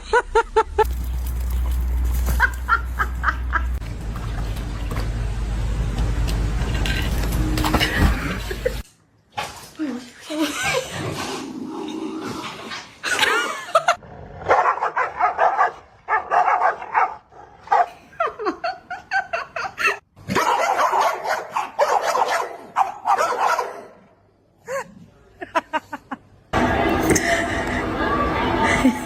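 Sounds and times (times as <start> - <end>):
dog barking yipping and whining: 14.5 - 17.9, 20.3 - 24.0.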